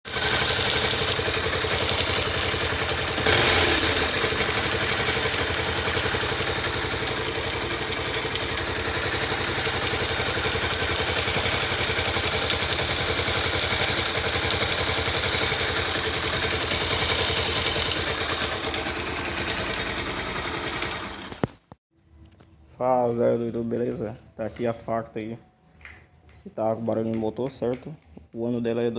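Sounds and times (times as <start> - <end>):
motorcycle engine idling: 0.1 - 21.5.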